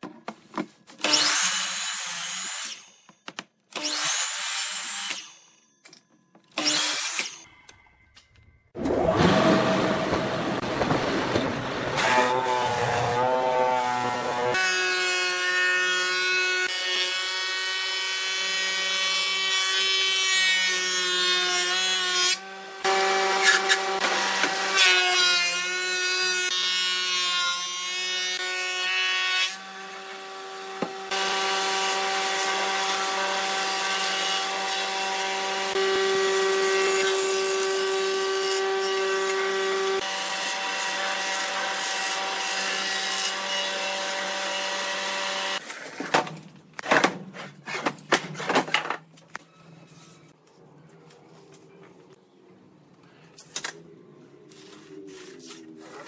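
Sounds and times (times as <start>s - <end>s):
power tool cutting wood: 1.0s - 3.1s, 3.7s - 5.5s, 6.5s - 7.5s, 8.8s - 10.6s, 11.7s - 45.8s.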